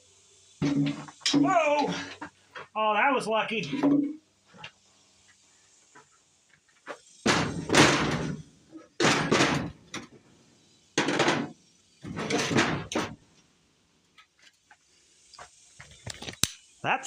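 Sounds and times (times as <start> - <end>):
metal engine parts knocking and scraping: 0.6 - 2.7, 6.8 - 10.2, 11.0 - 13.2.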